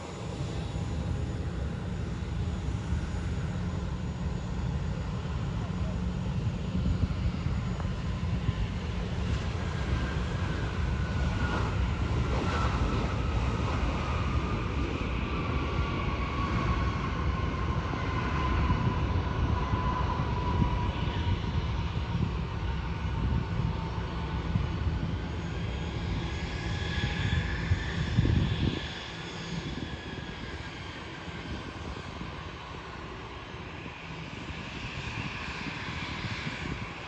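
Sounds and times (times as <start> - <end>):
jet airliner engine rumble: 0.0 - 37.0
jet engine whine: 0.0 - 37.0.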